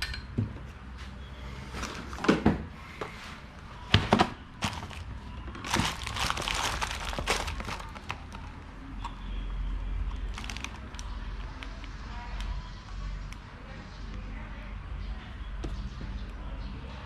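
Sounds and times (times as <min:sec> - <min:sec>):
crinkling rustle: 0:04.6 - 0:08.6, 0:10.2 - 0:11.8.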